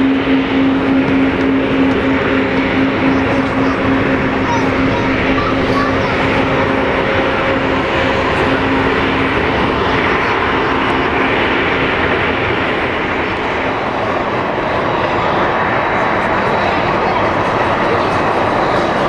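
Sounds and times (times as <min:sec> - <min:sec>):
jet engines running: 0:00.0 - 0:19.0
humming tone: 0:00.4 - 0:10.7.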